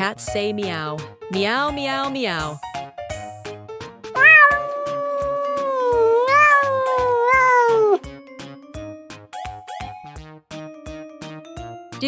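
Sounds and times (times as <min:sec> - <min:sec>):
cat meowing: 0:04.2 - 0:08.0.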